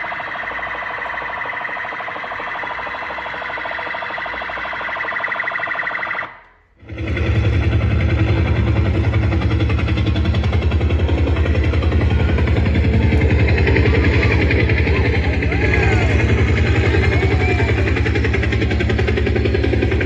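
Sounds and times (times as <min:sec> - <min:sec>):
pulsing electronic alarm: 0:00.0 - 0:20.0
low fast-pulsing rumble: 0:06.8 - 0:20.0.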